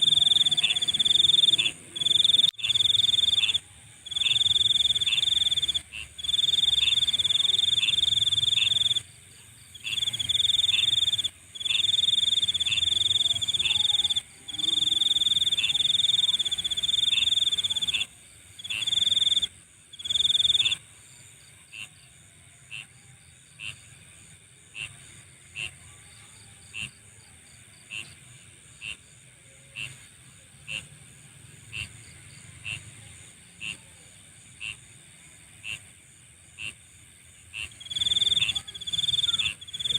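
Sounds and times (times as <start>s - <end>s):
insect trilling: 0.0s - 9.0s, 9.8s - 20.8s, 37.6s - 39.9s
high-pitched insect hiss: 0.0s - 9.1s, 9.7s - 20.8s, 37.6s - 39.9s
insect chirps: 0.0s - 39.9s.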